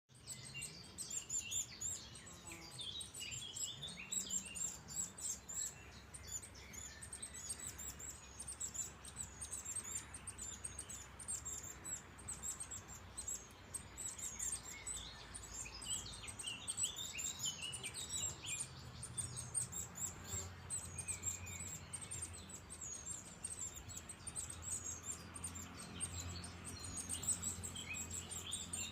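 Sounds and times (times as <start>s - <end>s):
songbirds chirping and twittering: 0.0s - 28.9s.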